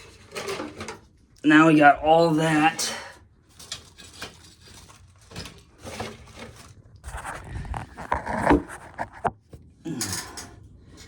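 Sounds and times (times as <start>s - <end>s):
scraping and rustling handling noises: 0.0s - 1.3s, 3.2s - 11.0s.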